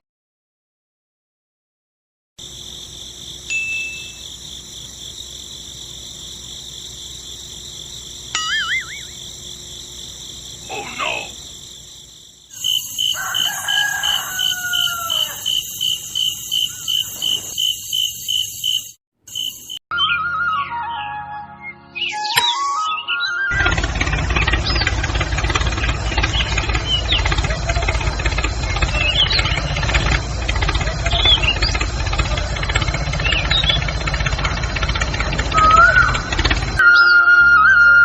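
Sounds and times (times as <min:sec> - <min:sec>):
rapid pulsing chirp: 0:02.4 - 0:19.8, 0:23.5 - 0:36.8
rooster crowing: 0:12.6 - 0:17.5.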